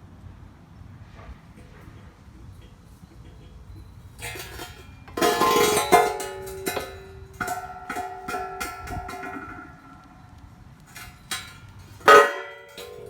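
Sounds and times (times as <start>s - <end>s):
metal parts clanking: 3.7s - 13.0s.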